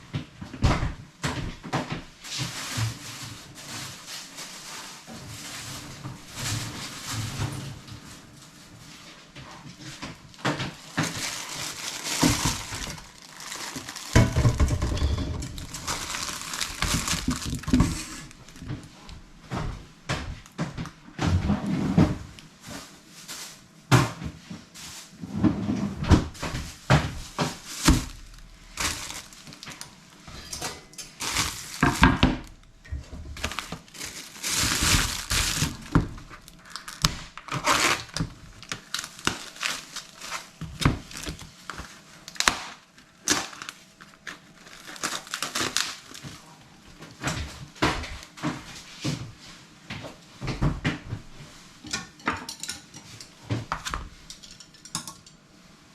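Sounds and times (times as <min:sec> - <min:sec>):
rustling and crinkling: 0:00.0 - 0:54.6
clatter of dishes and pots: 0:14.0 - 0:16.0, 0:30.2 - 0:33.6, 0:51.8 - 0:55.4.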